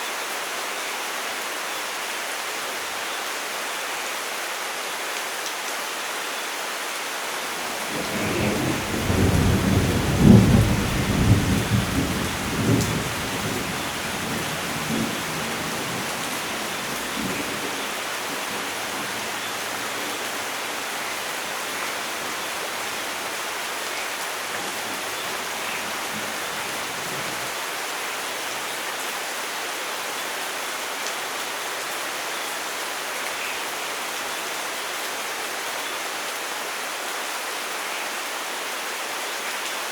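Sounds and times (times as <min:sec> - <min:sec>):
steady rain falling: 0:00.0 - 0:39.9
rolling thunder: 0:07.7 - 0:23.3.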